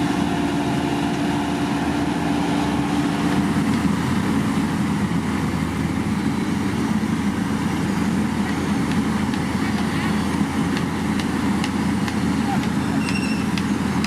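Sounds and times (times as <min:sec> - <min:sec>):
heavy diesel machinery running: 0:00.0 - 0:14.0.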